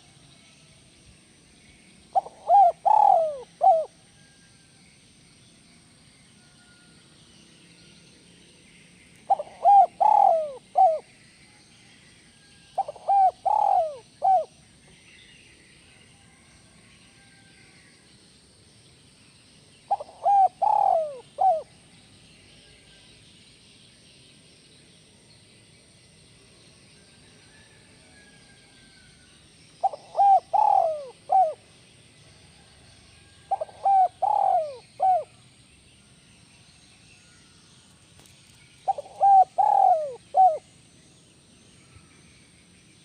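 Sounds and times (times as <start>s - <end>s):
dove cooing: 2.1s - 4.0s, 9.3s - 11.1s, 12.8s - 14.5s, 19.9s - 21.7s, 29.8s - 31.6s, 33.5s - 35.4s, 38.9s - 40.6s.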